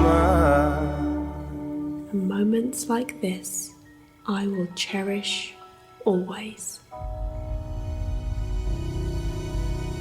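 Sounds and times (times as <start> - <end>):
soft slow chords: 6.9 - 10.0
deep low drone: 7.0 - 10.0.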